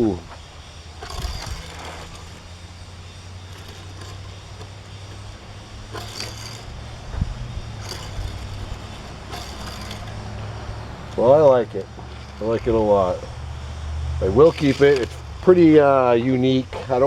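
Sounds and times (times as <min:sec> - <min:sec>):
low electrical hum: 0:00.0 - 0:17.0
toy truck scraping: 0:00.0 - 0:17.0.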